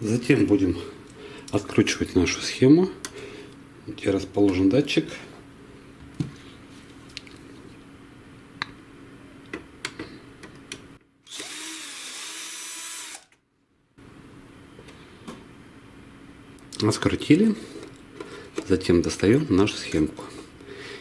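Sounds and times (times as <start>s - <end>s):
electric screwdriver running: 11.3s - 13.3s.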